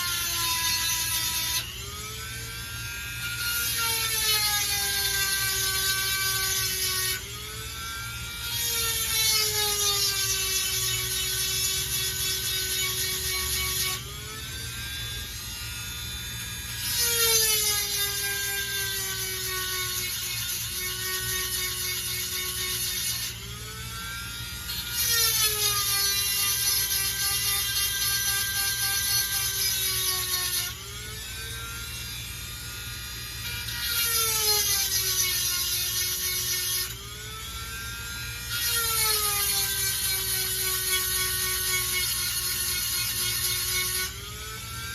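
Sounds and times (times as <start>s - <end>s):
rotary tool grinding whine: 0.0s - 44.9s.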